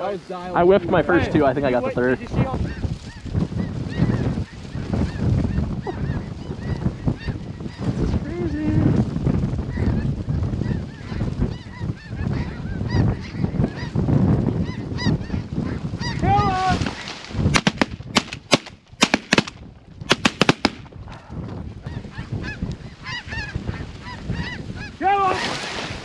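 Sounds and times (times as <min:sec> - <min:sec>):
shotgun shots: 0:17.6 - 0:20.9
geese honking: 0:21.8 - 0:25.5.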